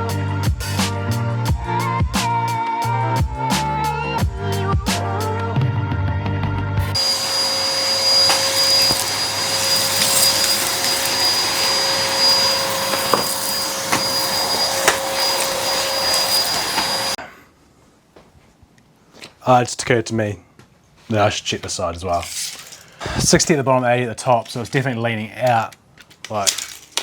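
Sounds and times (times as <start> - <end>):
vacuum cleaner running: 6.9 - 17.2.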